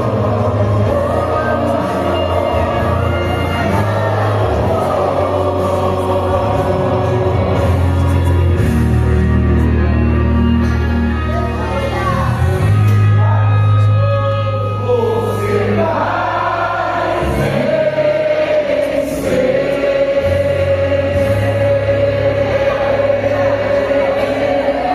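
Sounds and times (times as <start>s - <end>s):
choir singing a gospel song: 0.0s - 10.6s, 11.3s - 24.9s
low instrumental backing: 0.0s - 24.9s.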